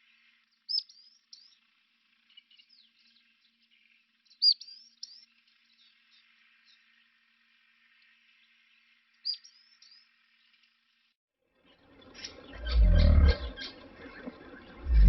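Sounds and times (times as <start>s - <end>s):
faint insect chirring: 0.0s - 11.1s
small bird singing: 0.0s - 15.0s.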